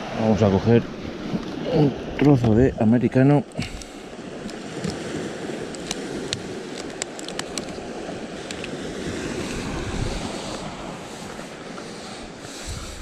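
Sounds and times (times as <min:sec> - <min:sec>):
waves washing against rocks: 0:00.0 - 0:13.0
small sharp clicks and taps: 0:05.7 - 0:07.8
wind on microphone: 0:07.4 - 0:13.0.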